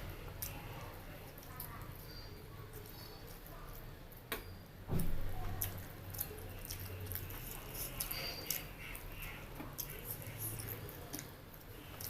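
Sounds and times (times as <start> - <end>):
person chewing food: 5.5 - 12.0.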